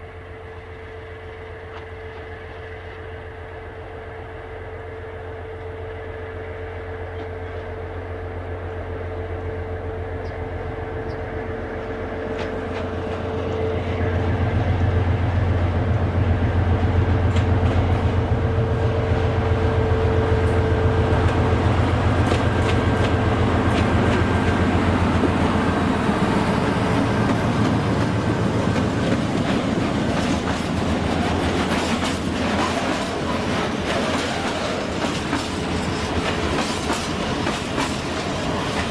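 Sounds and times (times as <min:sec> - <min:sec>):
train engine drone: 0:00.0 - 0:38.9
wheels clacking over rail joints: 0:11.0 - 0:38.9.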